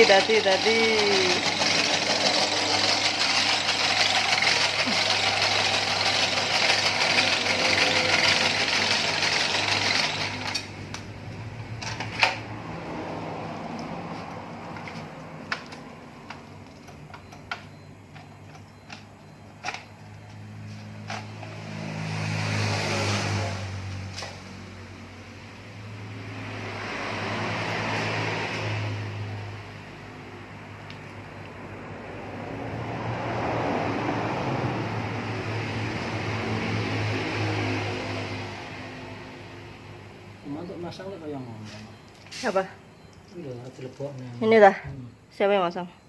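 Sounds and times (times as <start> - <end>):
electric motor humming: 0.0 - 10.6
sharp metallic clicks and taps: 13.7 - 20.4.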